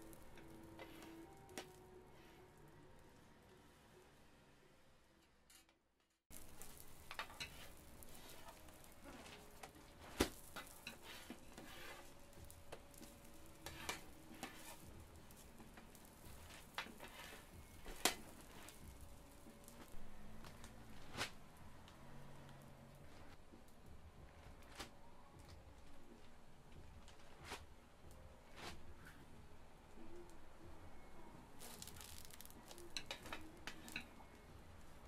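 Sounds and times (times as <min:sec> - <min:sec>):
griddle sizzling: 0:00.0 - 0:03.1, 0:06.3 - 0:23.8, 0:31.2 - 0:34.2
utensils knocking on hot metal: 0:06.3 - 0:19.9.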